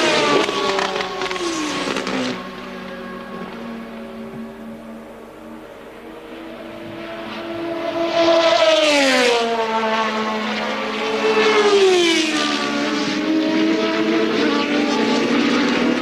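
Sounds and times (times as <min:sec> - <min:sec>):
steady engine drone: 0:00.0 - 0:11.7
racing cars passing by: 0:00.0 - 0:16.0.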